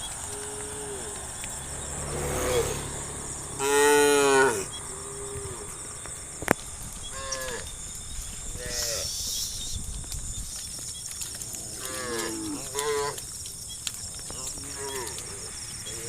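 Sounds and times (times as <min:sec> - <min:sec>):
cattle mooing: 0:00.1 - 0:05.9, 0:11.5 - 0:13.2, 0:14.4 - 0:16.0.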